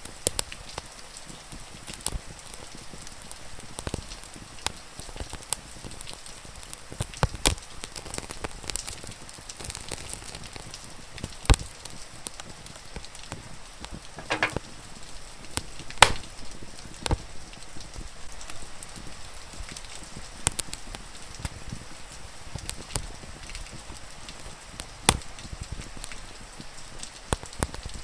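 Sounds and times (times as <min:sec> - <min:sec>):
wood fire crackling: 0:01.8 - 0:21.8
fire popping and snapping: 0:03.2 - 0:18.0, 0:18.9 - 0:21.8, 0:22.5 - 0:26.2, 0:27.0 - 0:28.0.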